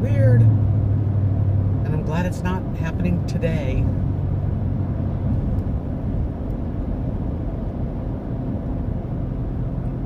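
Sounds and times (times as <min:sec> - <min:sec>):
vehicle road and engine rumble: 0:00.0 - 0:10.0.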